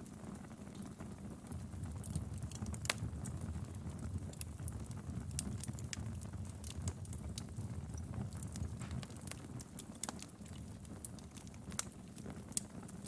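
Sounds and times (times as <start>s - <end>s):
fire crackling in a fireplace: 0.0s - 13.0s
sharp pops and snaps: 8.3s - 13.0s.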